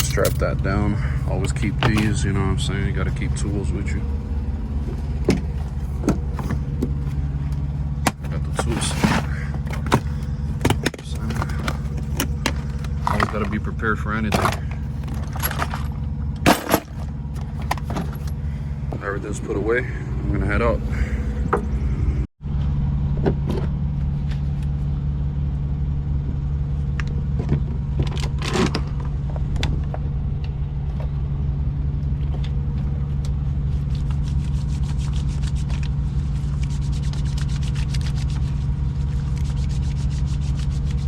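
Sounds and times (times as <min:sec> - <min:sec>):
diesel truck engine running: 0:00.0 - 0:41.0
clicks and rattles: 0:05.2 - 0:13.7, 0:14.3 - 0:18.4.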